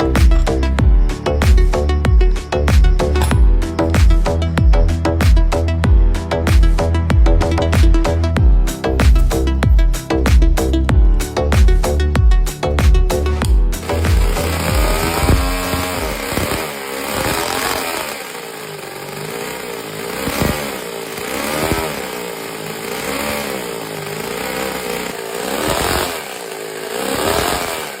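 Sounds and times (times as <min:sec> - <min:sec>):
small engine revving: 0:13.1 - 0:28.0.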